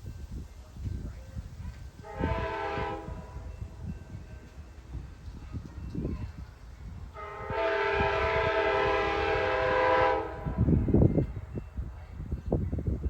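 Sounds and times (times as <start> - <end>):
passing train rumble: 0.0 - 13.0
locomotive air horn blast: 2.0 - 3.5, 7.2 - 11.0.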